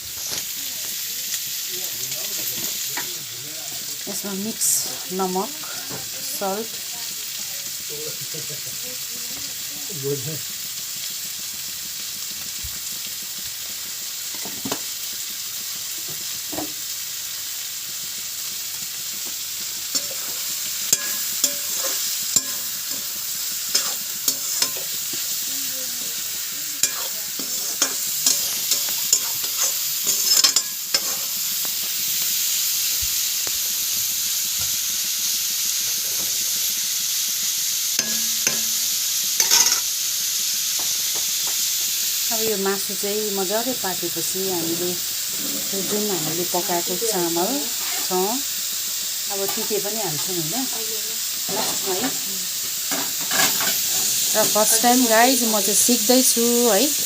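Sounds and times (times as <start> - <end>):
chicken sizzling in hot oil: 0.0 - 57.0
spoon knocking and scraping pot: 19.9 - 23.1, 23.7 - 25.2, 26.8 - 31.3, 38.0 - 38.7, 39.4 - 39.9.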